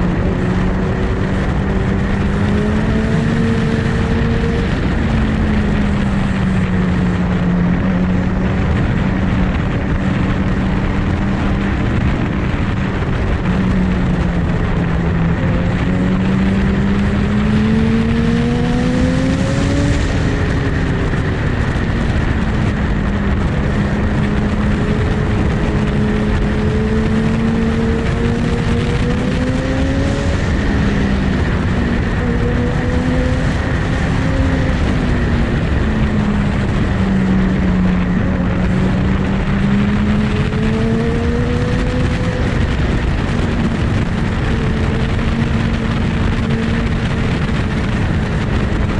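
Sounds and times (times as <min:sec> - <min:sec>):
motorcycle engine running: 0:00.0 - 0:48.9
wind and road noise: 0:00.0 - 0:48.9.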